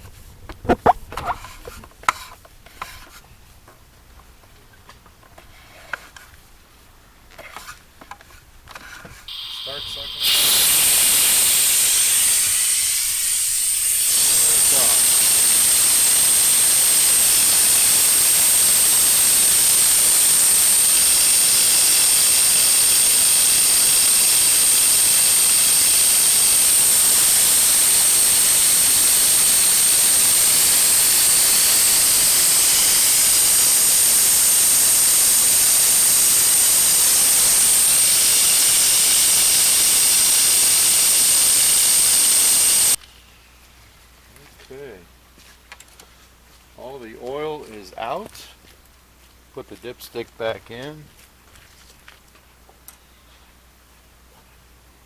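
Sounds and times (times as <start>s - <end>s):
oil extractor hissing and whistling: 9.3s - 43.0s.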